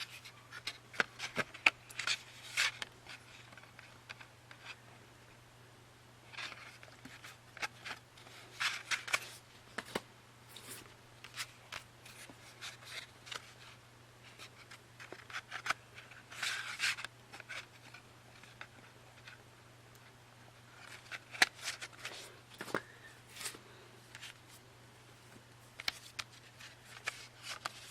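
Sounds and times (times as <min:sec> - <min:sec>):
steady low hum: 0:00.0 - 0:27.9
packaging clicks and rustling: 0:20.8 - 0:24.5.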